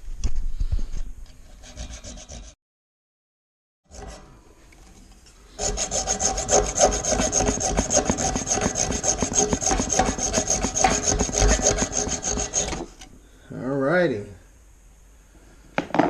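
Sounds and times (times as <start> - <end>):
hacksaw cutting pipe: 1.6 - 2.6, 3.9 - 4.2, 5.5 - 13.1.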